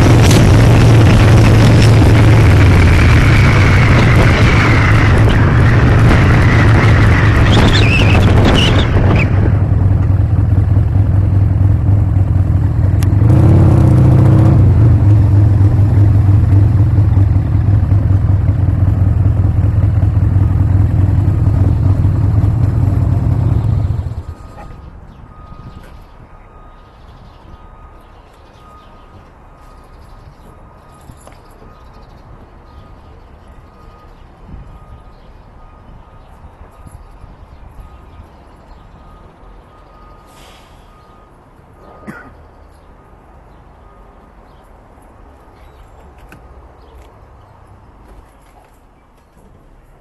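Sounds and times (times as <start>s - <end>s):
heavy wind noise: 0.0s - 10.4s
motorcycle engine running: 9.5s - 24.6s.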